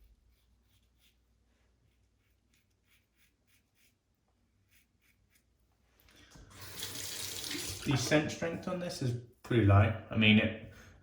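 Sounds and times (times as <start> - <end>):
razor scratching stubble: 1.9 - 5.7.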